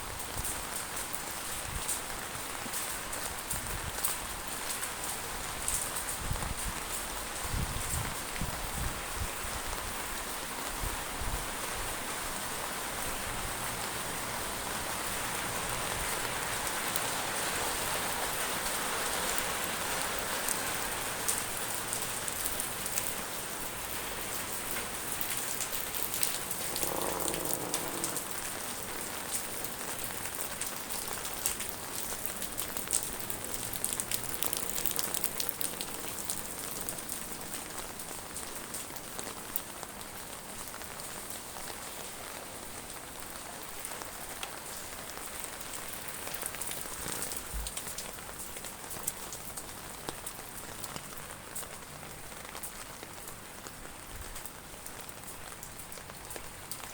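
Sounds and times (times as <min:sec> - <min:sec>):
heavy rain falling: 0:00.0 - 0:56.9
close raindrops ticking: 0:13.4 - 0:28.4, 0:29.2 - 0:43.0, 0:43.6 - 0:56.9
short pitched sound: 0:26.4 - 0:28.9.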